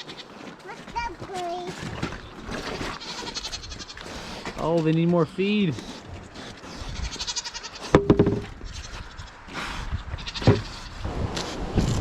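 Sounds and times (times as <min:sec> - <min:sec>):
goats bleating: 0:00.0 - 0:00.4, 0:02.7 - 0:04.4, 0:07.0 - 0:08.0.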